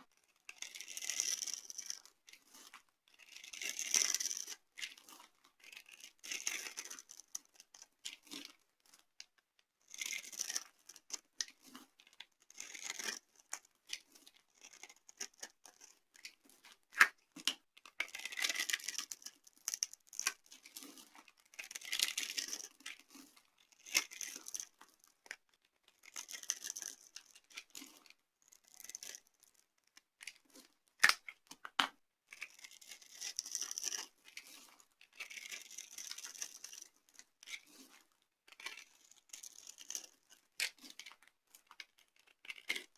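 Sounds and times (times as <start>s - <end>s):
soap snapping: 31.0s - 31.9s
dry soap crunching: 31.0s - 33.3s.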